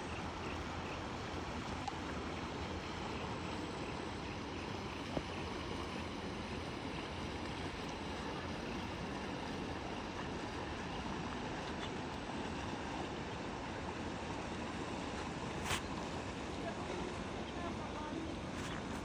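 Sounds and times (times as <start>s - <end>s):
rushing water: 0.0s - 19.0s
wind: 0.0s - 19.0s.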